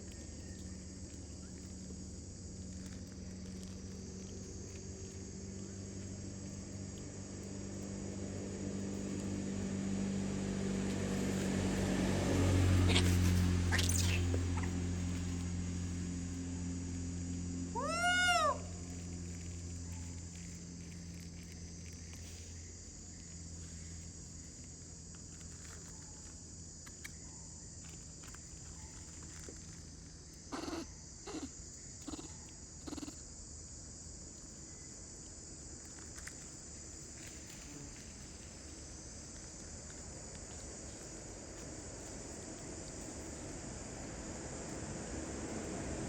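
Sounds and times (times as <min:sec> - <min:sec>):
steady low hum: 0:00.0 - 0:46.0
monkey calls: 0:12.8 - 0:14.8, 0:17.8 - 0:18.8, 0:30.5 - 0:33.2.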